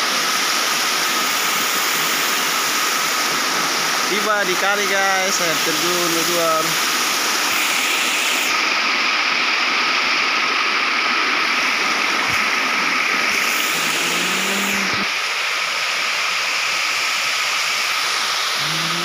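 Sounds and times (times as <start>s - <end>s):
waterfall rushing: 0.0s - 19.0s
short voice: 13.6s - 15.1s, 18.6s - 19.0s.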